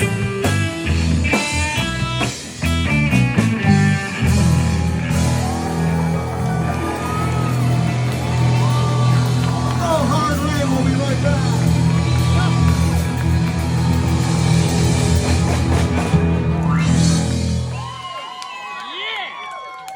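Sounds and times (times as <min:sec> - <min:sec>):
bass guitar: 0:00.0 - 0:18.1
electric guitar: 0:00.0 - 0:18.1
drum hits: 0:02.5 - 0:17.6.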